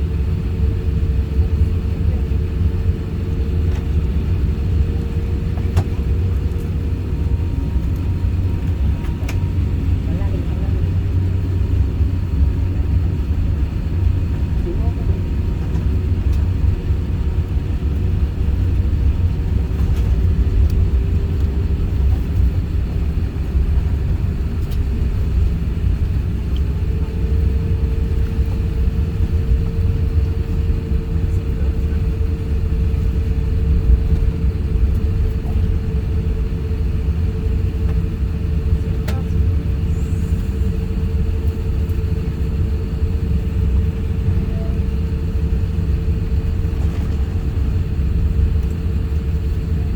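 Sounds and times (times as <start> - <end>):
low engine rumble in aircraft cabin: 0.0 - 49.9
steady hum: 38.6 - 49.9.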